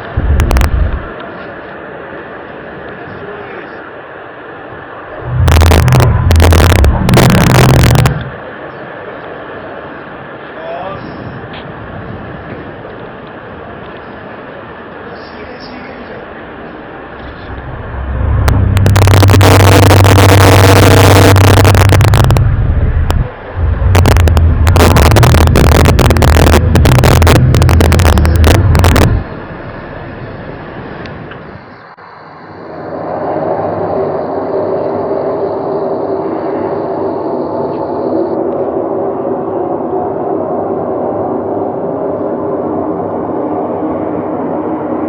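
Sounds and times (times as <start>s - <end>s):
distorted low droning hum: 0.0s - 1.2s, 4.5s - 8.7s, 14.7s - 45.0s
crackles: 0.0s - 3.0s, 5.0s - 9.4s, 17.0s - 32.0s.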